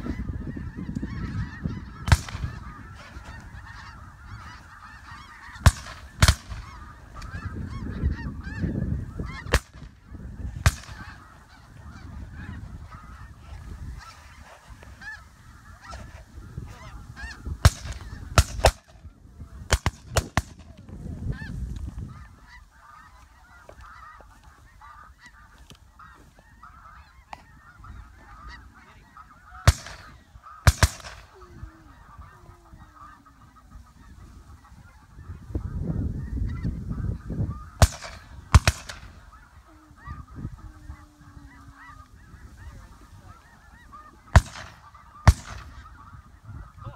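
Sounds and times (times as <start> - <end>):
geese honking: 0.0 - 46.9
sharp bangs: 37.8 - 39.2.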